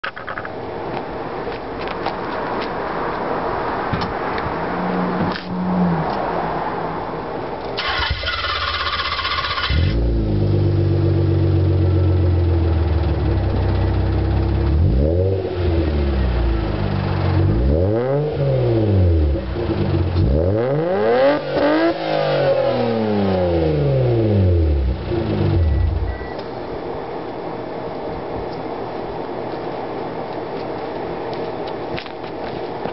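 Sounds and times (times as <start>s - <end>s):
car engine revving: 7.8s - 26.3s.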